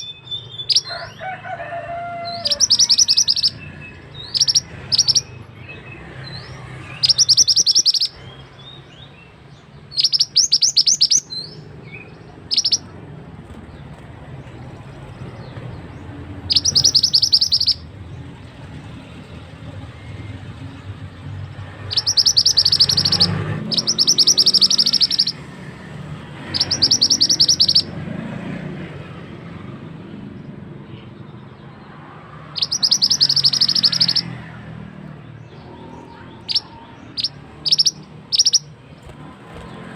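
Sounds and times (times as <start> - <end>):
bird singing fast high notes: 2.2 - 5.4, 6.4 - 8.7, 9.9 - 12.9, 16.4 - 17.9, 21.8 - 25.4, 26.4 - 27.9, 32.6 - 34.4, 36.0 - 38.8.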